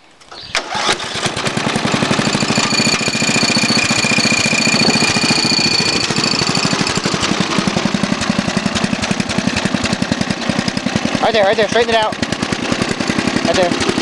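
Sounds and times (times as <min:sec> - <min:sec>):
lawn mower engine running: 0:00.3 - 0:14.0
steady high whine: 0:02.2 - 0:08.5.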